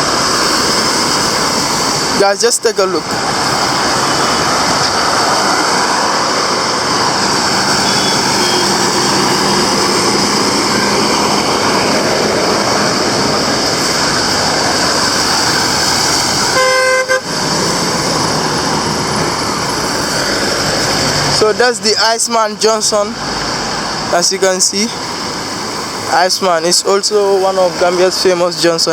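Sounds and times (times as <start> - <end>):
road traffic passing: 0.0 - 28.9
vehicle horn tooting: 7.8 - 9.7, 16.5 - 17.3.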